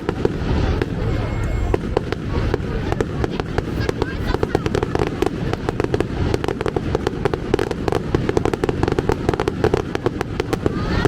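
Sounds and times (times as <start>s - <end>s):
crackling firework bangs: 0.0s - 11.0s
low rumble: 0.2s - 4.3s.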